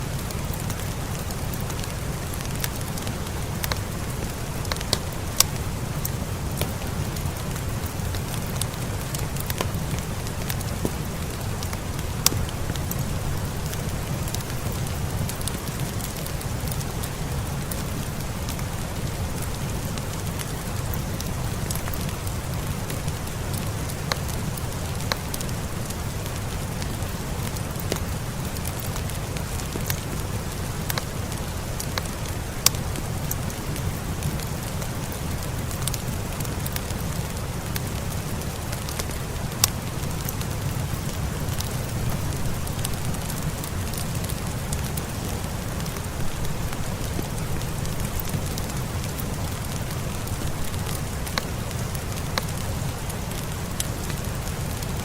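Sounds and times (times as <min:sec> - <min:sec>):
fireplace crackling: 0:00.0 - 0:55.0
steady rain falling: 0:00.0 - 0:55.0.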